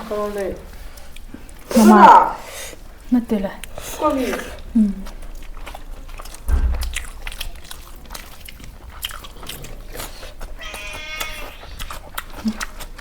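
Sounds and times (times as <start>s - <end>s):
person chewing crunchy food: 0.8s - 1.9s, 3.6s - 13.0s
low thump: 6.4s - 7.3s.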